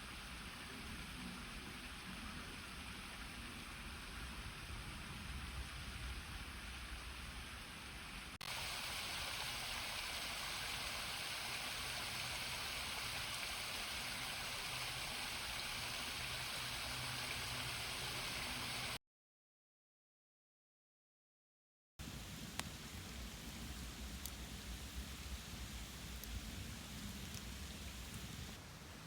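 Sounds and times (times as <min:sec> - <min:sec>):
river rushing water: 0:08.4 - 0:19.0.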